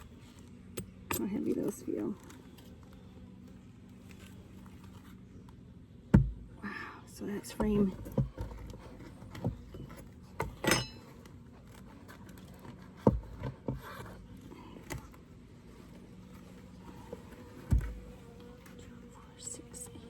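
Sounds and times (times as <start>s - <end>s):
faint steady hum: 0.0s - 20.0s
wooden hive frames knocking: 7.5s - 8.6s
metal hive tool scraping: 7.6s - 15.1s.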